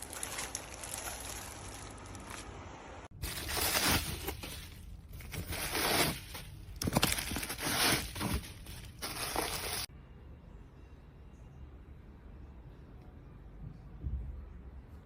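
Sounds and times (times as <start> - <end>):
crinkling handling noise: 0.0 - 9.9.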